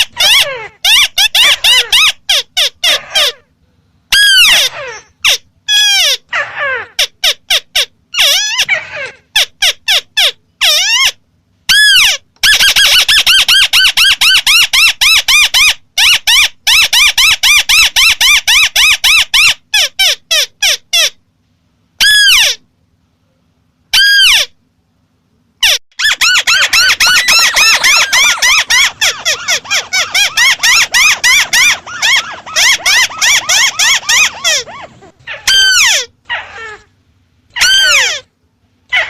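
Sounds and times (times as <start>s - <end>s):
crake calling nasal notes: 26.0s - 35.2s.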